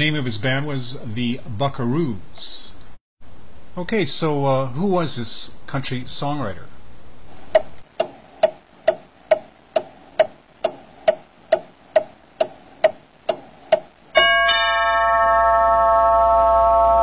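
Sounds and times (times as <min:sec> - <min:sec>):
clock ticking: 0:07.6 - 0:14.0
sustained chime chord: 0:14.2 - 0:17.0.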